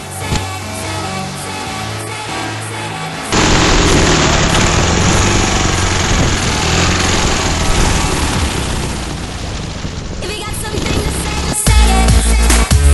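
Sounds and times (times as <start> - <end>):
motorcycle engine running loudly: 3.3 - 12.9.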